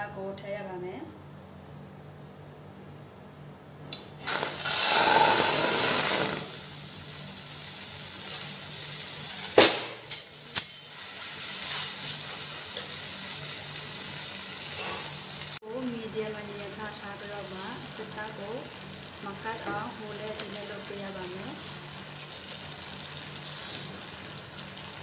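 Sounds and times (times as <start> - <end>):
chicken sizzling in oil: 4.2 - 25.0.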